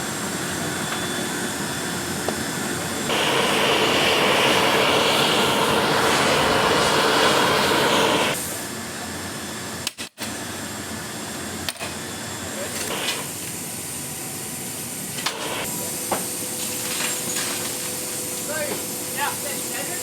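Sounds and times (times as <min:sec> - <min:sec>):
jet engines running: 0:00.0 - 0:09.8, 0:10.4 - 0:20.0
loud hiss: 0:02.4 - 0:08.8, 0:12.8 - 0:20.0.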